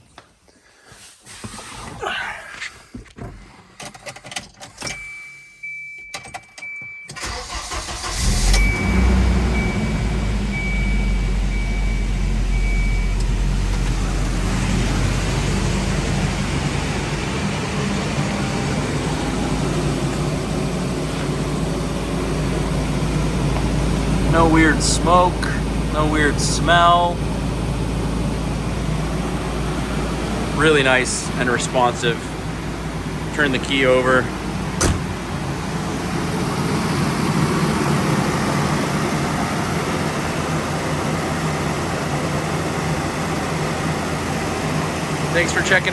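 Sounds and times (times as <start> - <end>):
car engine cranking and idling: 5.9 - 45.9
high beeping tone: 8.6 - 13.2.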